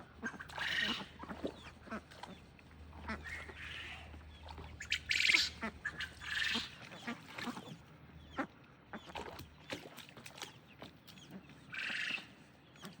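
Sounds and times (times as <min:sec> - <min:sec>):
duck quack: 0:00.2 - 0:02.4, 0:03.0 - 0:04.1, 0:04.8 - 0:07.7, 0:11.3 - 0:12.3.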